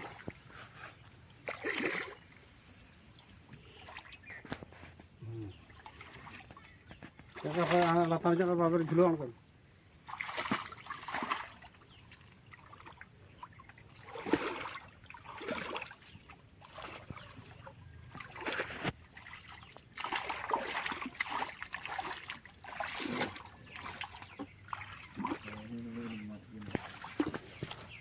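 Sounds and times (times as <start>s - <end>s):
splashing in water and mud: 0.0s - 2.5s, 3.1s - 28.0s.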